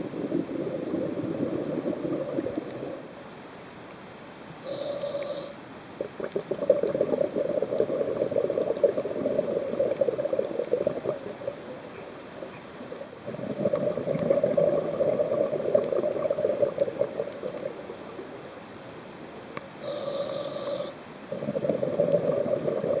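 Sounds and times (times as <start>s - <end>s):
diver bubbling exhalations: 0.0s - 3.1s, 4.6s - 11.7s, 12.8s - 18.0s, 19.8s - 23.0s
regulator hissing inhale: 4.6s - 5.6s, 19.8s - 21.0s.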